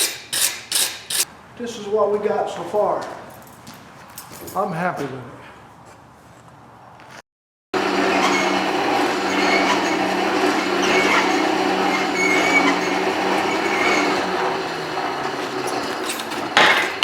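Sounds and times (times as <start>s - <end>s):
forge rushing roar: 7.8s - 17.0s.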